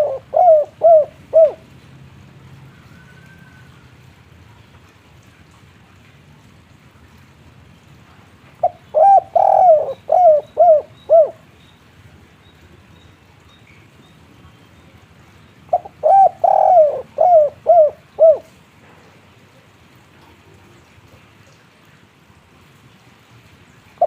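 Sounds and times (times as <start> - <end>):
dove cooing: 0.0 - 1.7, 8.6 - 11.4, 15.7 - 18.6.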